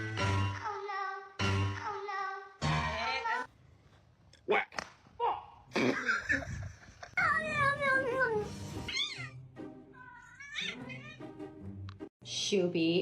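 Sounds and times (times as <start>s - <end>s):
cat meowing: 8.9s - 9.4s, 10.0s - 11.2s.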